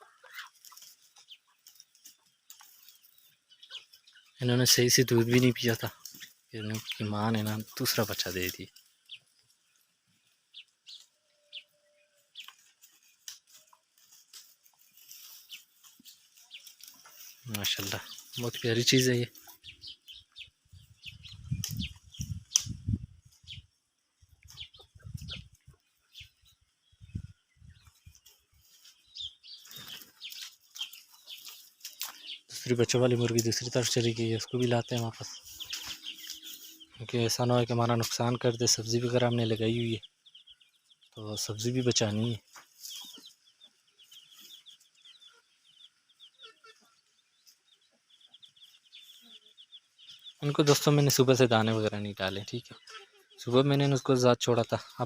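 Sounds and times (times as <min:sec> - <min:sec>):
hen clucking softly: 0:00.0 - 0:00.9
chicks peeping: 0:00.0 - 0:55.0
small birds chirping: 0:00.0 - 0:55.0.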